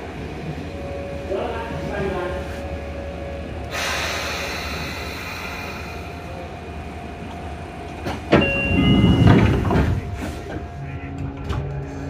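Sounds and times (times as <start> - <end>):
train hiss: 3.6 - 6.6.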